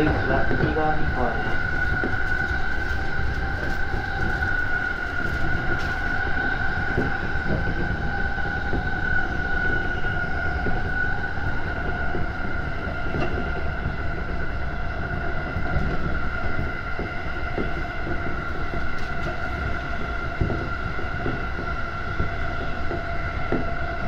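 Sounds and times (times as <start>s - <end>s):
wheels rumbling on rails: 0.0s - 24.0s.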